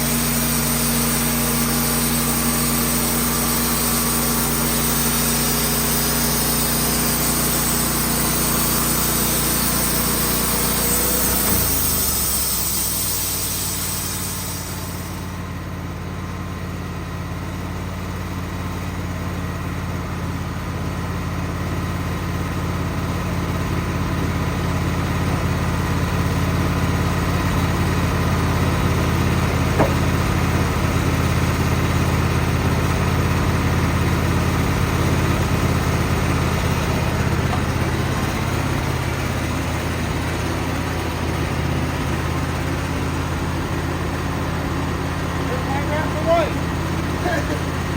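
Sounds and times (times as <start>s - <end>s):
high hiss: 0.0s - 15.5s
band sawmill engine running: 0.0s - 47.9s.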